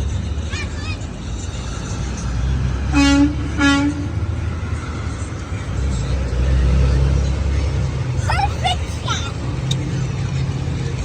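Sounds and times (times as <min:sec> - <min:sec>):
engines rumbling: 0:00.0 - 0:11.0
truck horn toots: 0:02.9 - 0:04.2.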